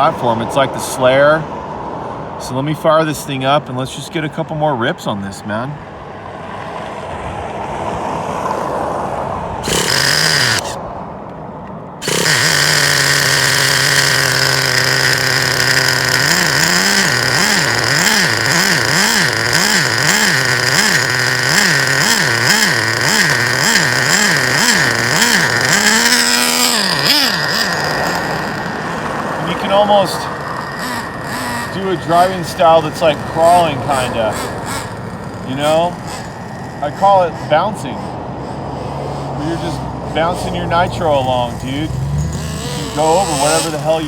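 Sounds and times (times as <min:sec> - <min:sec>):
nitro engine starting and revving: 0:08.0 - 0:10.8, 0:12.0 - 0:44.0
starter whirr: 0:09.6 - 0:10.8, 0:12.0 - 0:44.0.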